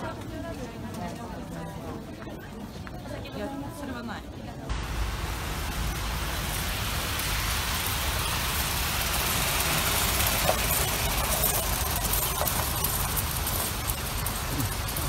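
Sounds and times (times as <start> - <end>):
even hiss: 4.7 - 15.0.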